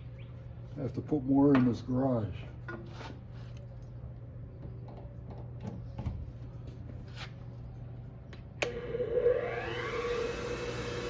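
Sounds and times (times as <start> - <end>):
bench grinder motor whine: 8.6 - 11.0.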